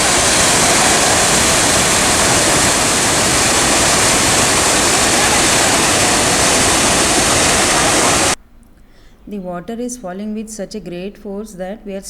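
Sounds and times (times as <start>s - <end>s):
waterfall rushing: 0.0s - 8.4s.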